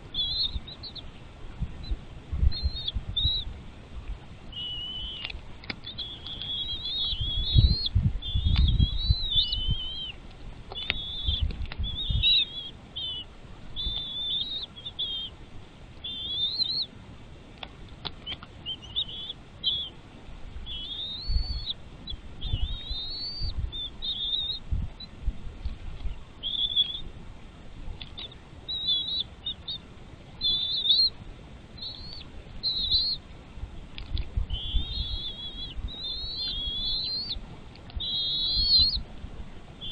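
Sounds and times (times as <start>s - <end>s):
eagles chirping calls: 0.0s - 3.6s, 4.2s - 25.1s, 26.0s - 27.2s, 28.0s - 33.3s, 34.4s - 39.9s.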